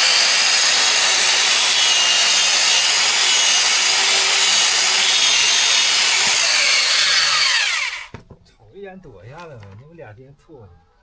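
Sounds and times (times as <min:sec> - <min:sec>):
electric saw motor whine: 0:00.0 - 0:08.1
saw rasping through wood: 0:00.0 - 0:08.1.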